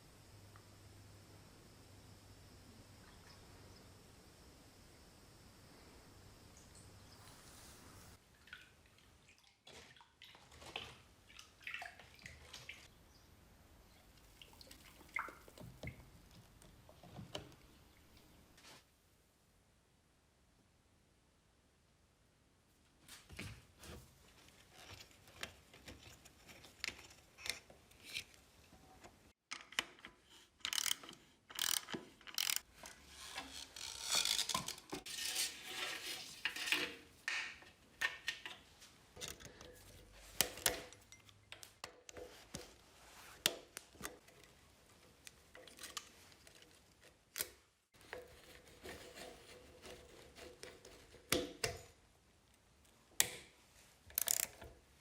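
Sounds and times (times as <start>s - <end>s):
clicks and knocks on metal parts: 54.1s - 54.8s.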